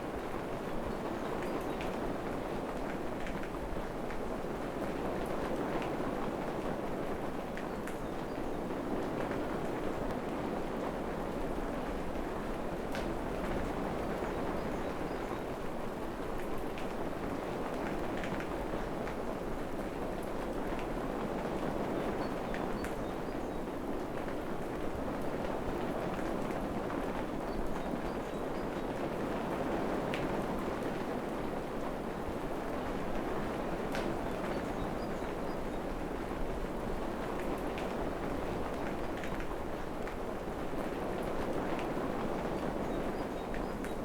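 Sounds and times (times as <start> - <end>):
steady rain falling: 0.0 - 44.0.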